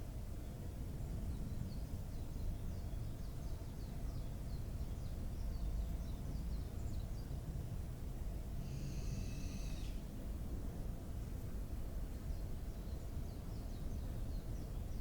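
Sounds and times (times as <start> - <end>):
small bird high chirps: 8.7 - 10.0.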